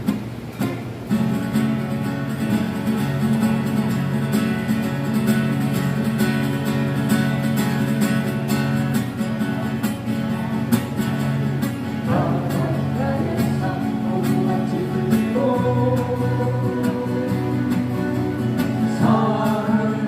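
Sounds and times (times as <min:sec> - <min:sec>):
acoustic guitars strummed: 0:00.0 - 0:20.0
person singing: 0:12.1 - 0:20.0.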